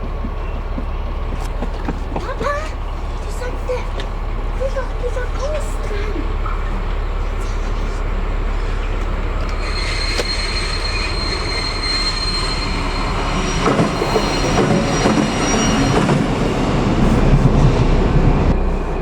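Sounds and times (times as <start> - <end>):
train rolling: 0.0 - 19.0
wheels squealing on rails: 0.0 - 19.0.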